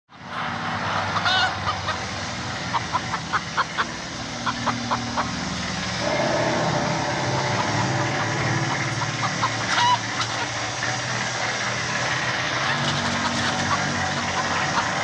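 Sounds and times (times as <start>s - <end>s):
steady low hum: 4.3s - 14.6s.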